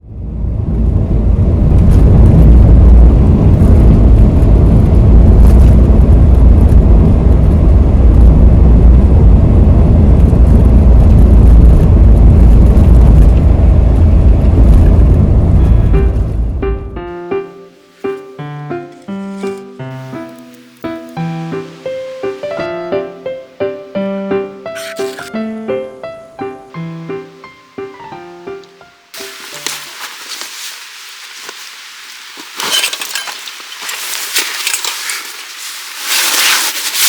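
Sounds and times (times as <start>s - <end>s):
car engine and road noise: 0.0s - 17.1s
piano-like music: 13.2s - 30.4s.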